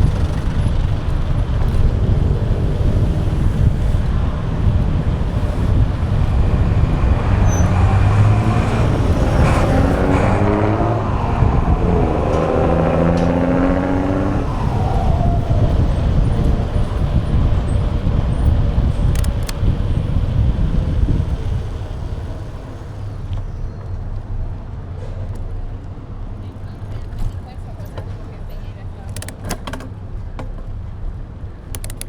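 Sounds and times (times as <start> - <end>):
engine note: 0.0 - 23.6
wind rumble: 0.0 - 28.4
sharp clicks: 19.0 - 19.6, 29.1 - 29.9, 31.7 - 32.0.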